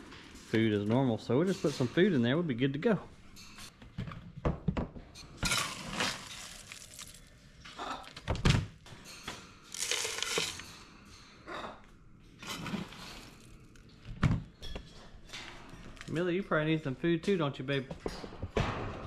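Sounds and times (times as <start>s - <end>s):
dry bird food rattling: 9.7s - 10.6s.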